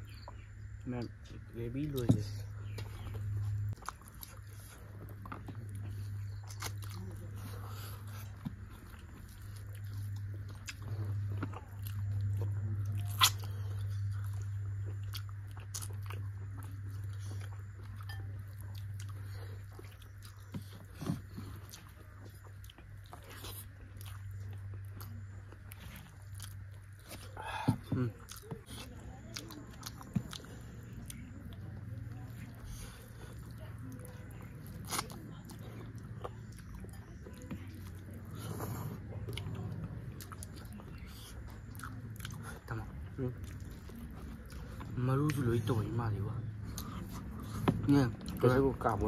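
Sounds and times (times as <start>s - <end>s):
low hum: 0.0s - 49.0s
people chewing and mouth sounds: 0.0s - 49.0s.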